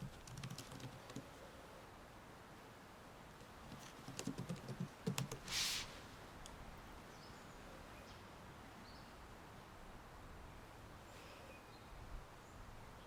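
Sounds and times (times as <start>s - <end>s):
faint outdoor background: 0.0s - 13.0s
short soft hiss: 5.4s - 6.5s.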